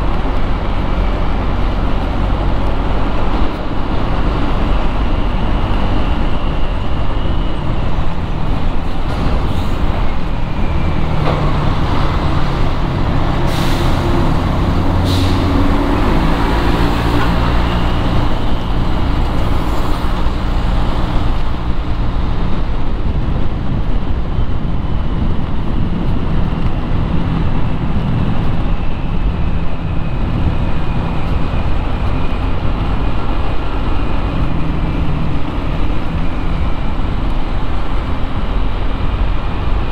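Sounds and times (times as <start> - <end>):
tyres on road: 0.0 - 39.9
vehicle engines running: 0.0 - 39.9.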